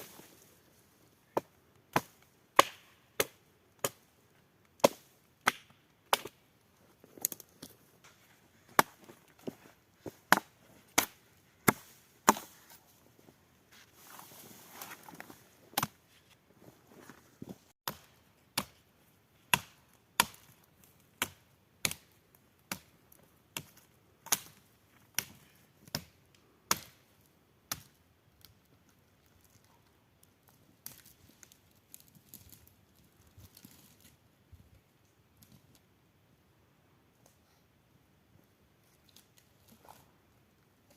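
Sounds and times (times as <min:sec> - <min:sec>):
axe chopping wood: 0:01.4 - 0:04.0, 0:04.8 - 0:06.4, 0:08.8 - 0:09.1, 0:10.3 - 0:12.6, 0:15.8 - 0:16.0, 0:17.9 - 0:18.8, 0:19.5 - 0:20.5, 0:23.6 - 0:24.6, 0:25.2 - 0:27.0.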